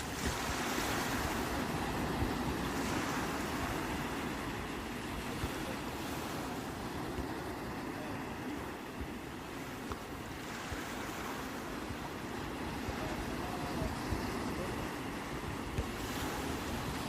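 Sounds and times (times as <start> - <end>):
sea waves washing in: 0.0 - 17.0
wind rumble on microphone: 0.0 - 17.0.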